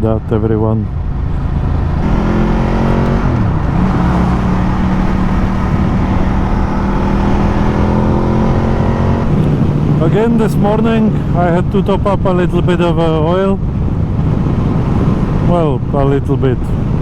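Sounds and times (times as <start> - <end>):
road noise: 0.0 - 17.0
wind noise: 0.0 - 17.0
motorcycle engine running: 0.9 - 11.6.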